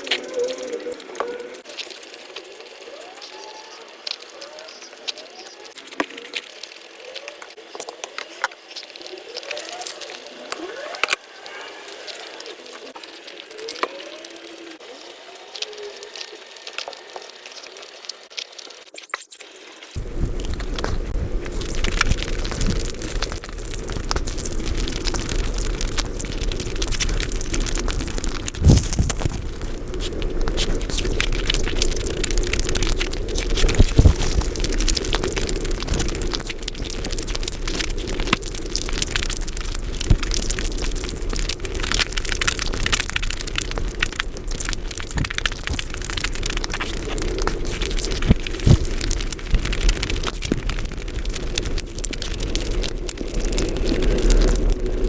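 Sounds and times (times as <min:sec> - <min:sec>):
rapid wet chewing and mouth clicks: 0:20.0 - 0:55.0.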